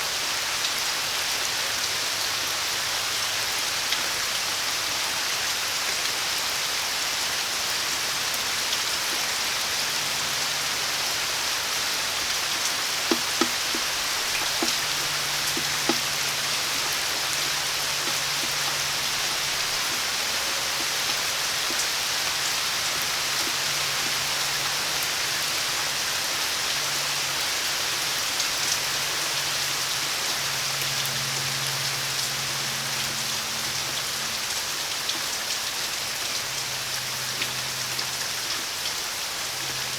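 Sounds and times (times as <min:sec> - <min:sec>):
steady rain falling: 0:00.0 - 0:39.9
sharp water drips: 0:07.5 - 0:26.0.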